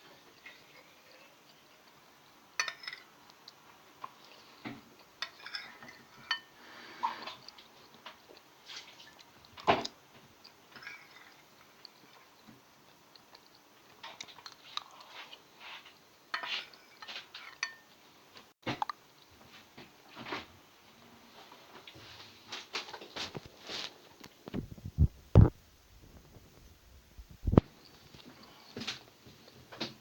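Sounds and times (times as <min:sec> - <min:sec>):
dishes and cutlery clinking: 0:02.6 - 0:03.1, 0:04.6 - 0:06.6, 0:16.3 - 0:17.9.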